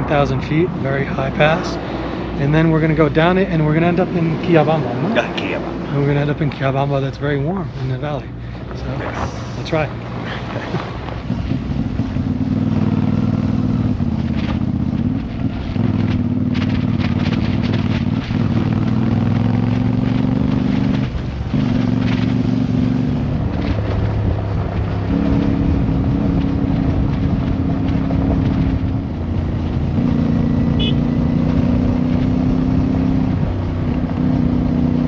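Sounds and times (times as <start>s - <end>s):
motorcycle engine running: 8.3s - 35.0s.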